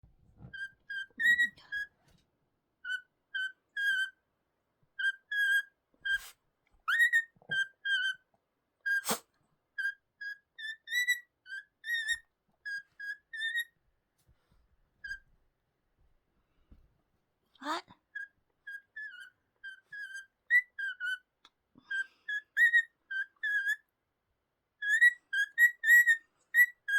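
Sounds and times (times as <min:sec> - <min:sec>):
cockatiel whistling: 0:00.6 - 0:01.9, 0:02.8 - 0:04.2, 0:05.0 - 0:06.3, 0:06.9 - 0:08.2, 0:09.8 - 0:13.7, 0:18.2 - 0:21.3, 0:21.9 - 0:23.8, 0:24.8 - 0:26.9.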